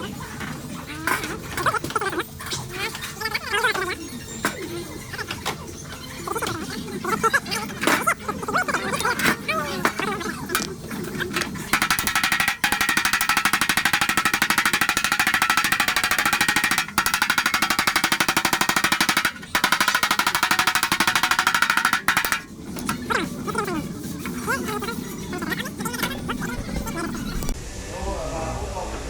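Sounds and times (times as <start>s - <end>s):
power tool hammering rattle: 11.4s - 23.1s.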